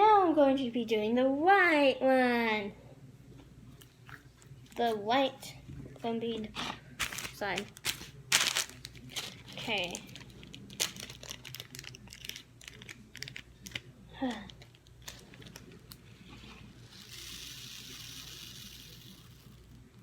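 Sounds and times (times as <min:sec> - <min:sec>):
foam beads pouring into container: 0:16.8 - 0:19.7.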